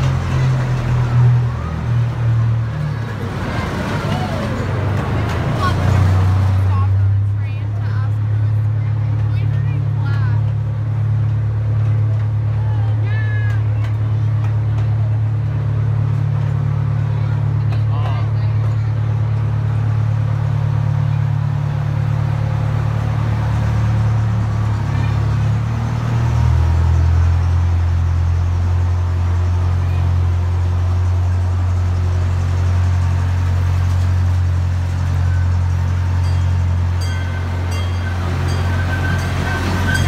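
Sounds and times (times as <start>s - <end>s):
miniature train rumbling on track: 0.0s - 40.0s.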